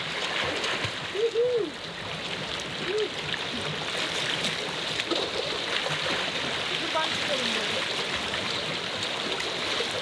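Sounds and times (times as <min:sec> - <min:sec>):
water splashing and running: 0:00.0 - 0:10.0.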